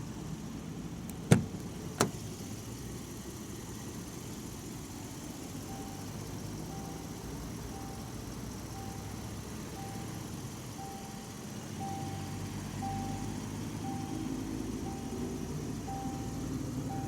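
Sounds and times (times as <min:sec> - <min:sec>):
car engine idling: 0:00.0 - 0:17.0
car warning chime beeping: 0:05.5 - 0:17.0.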